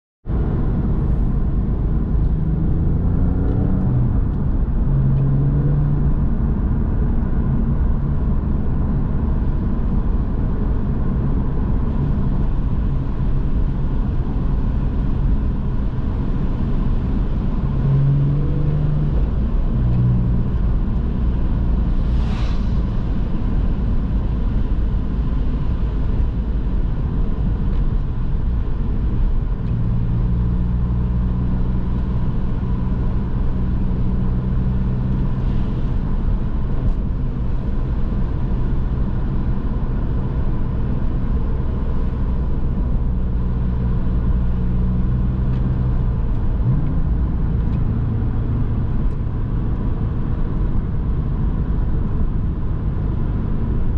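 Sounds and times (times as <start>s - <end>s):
car engine running: 0.3s - 53.9s
tyre and road noise: 0.3s - 53.9s
brief hiss: 22.0s - 23.0s.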